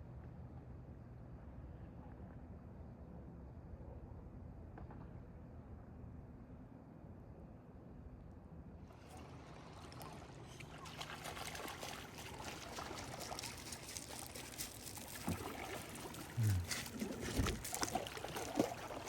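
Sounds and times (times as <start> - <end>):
lake water lapping: 9.0 - 19.0
short low voice: 16.3 - 17.6.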